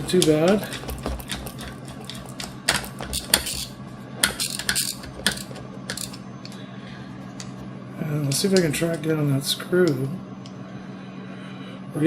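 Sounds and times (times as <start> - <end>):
small hard objects clinking: 0.0 - 6.2
steady low hum: 0.0 - 12.0.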